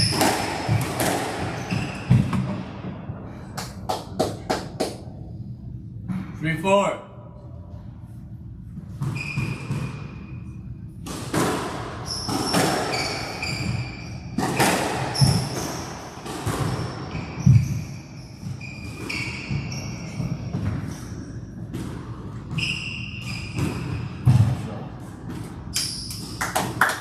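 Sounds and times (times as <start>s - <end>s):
shoes squeaking on court floor: 0.0s - 2.5s, 8.9s - 10.5s, 12.0s - 24.4s
squash ball hitting rackets: 0.0s - 2.7s, 9.0s - 10.1s, 11.0s - 17.8s, 18.4s - 26.8s.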